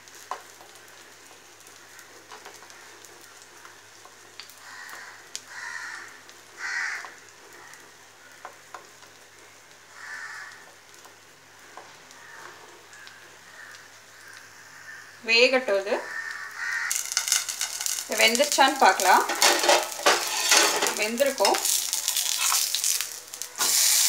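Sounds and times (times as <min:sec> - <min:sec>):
oil sizzling in a pan: 0:00.0 - 0:24.0
bird harsh cries: 0:16.1 - 0:17.0.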